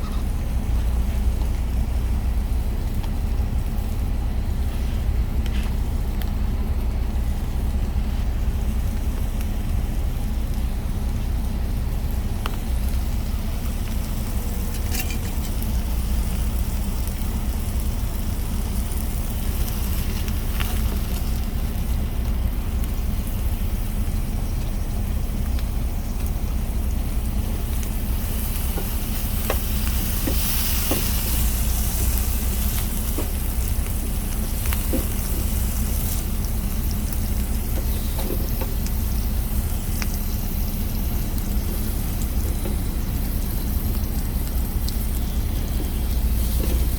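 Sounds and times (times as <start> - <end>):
steady low hum: 0.0 - 46.9
food sizzling in a pan: 12.6 - 46.9.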